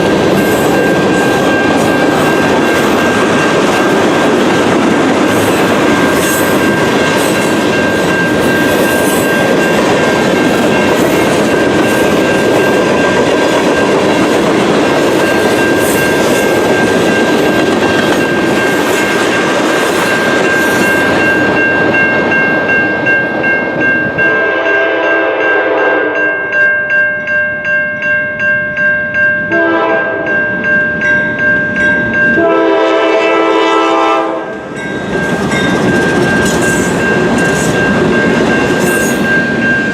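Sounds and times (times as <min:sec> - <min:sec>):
crossing bell ringing: 0:00.0 - 0:39.9
freight train wheels on rails: 0:00.0 - 0:39.9
locomotive air horn blasts: 0:24.2 - 0:26.2, 0:29.5 - 0:30.3, 0:32.4 - 0:34.5.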